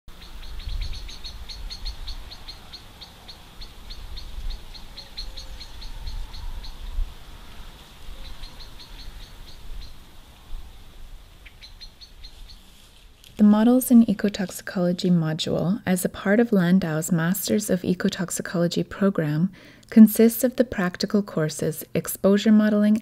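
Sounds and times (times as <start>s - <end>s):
small bird chirping: 0.1s - 10.1s, 10.7s - 12.9s.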